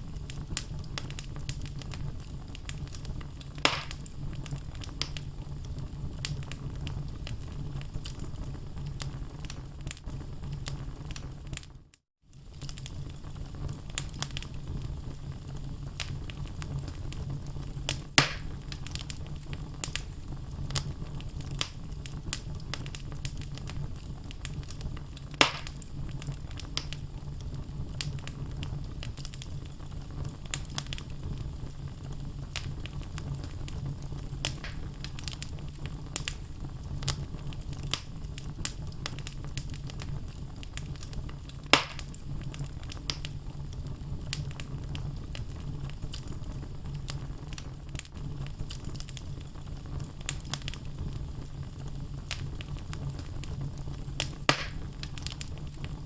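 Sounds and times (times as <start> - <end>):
fire burning: 0.0 - 56.0
wood crackling: 0.1 - 11.7, 12.4 - 56.0
loud wood pops: 3.6 - 4.0, 18.2 - 18.5, 25.4 - 25.8, 34.5 - 34.9, 41.7 - 42.1, 54.5 - 54.9.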